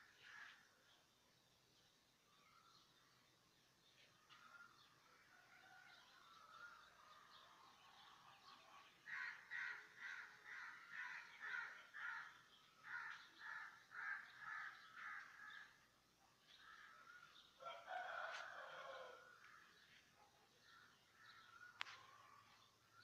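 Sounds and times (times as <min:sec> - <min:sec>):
bird harsh calls: 0:09.0 - 0:15.9.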